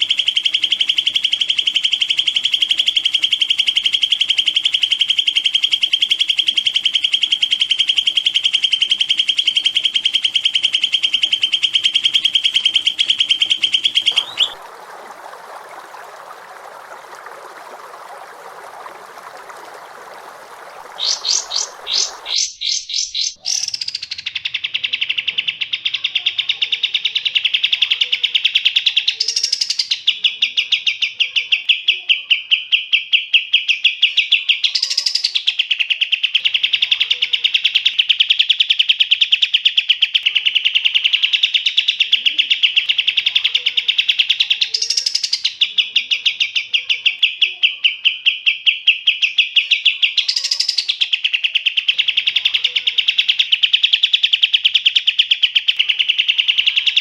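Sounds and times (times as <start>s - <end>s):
songbird fast trill: 0.0s - 14.6s, 17.8s - 57.0s.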